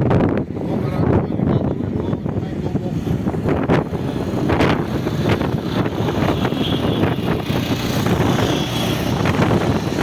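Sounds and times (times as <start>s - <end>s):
wheels knocking and clattering: 3.6s - 10.0s.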